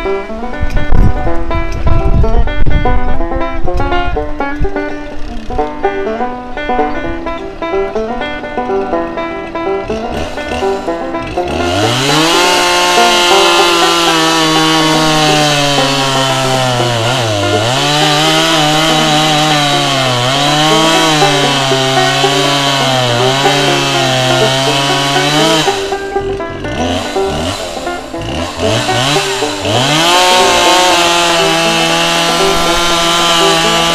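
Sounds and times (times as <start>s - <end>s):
chainsaw engine revving: 5.2s - 5.9s, 7.6s - 33.9s.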